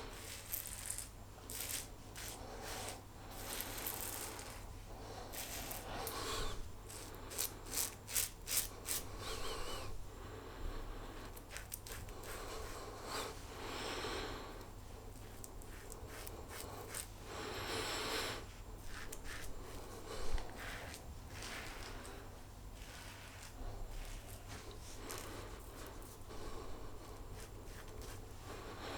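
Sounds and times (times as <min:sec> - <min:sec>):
razor scraping stubble: 0:00.1 - 0:04.7, 0:05.3 - 0:09.8, 0:11.4 - 0:12.9, 0:15.2 - 0:17.1, 0:18.8 - 0:22.2, 0:22.8 - 0:26.1, 0:27.0 - 0:28.3.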